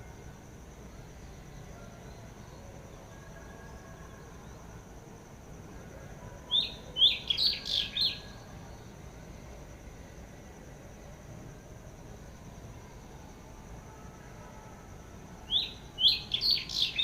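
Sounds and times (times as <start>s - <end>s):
faint high-pitched hiss: 0.0s - 17.0s
bird chirping: 6.5s - 8.3s, 15.5s - 17.0s.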